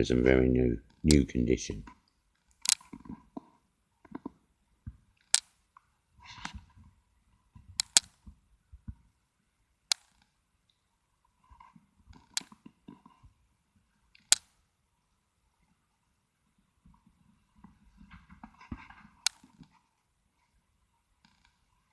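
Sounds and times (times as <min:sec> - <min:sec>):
sharp loud clicks: 0:07.8 - 0:08.2, 0:09.9 - 0:10.3.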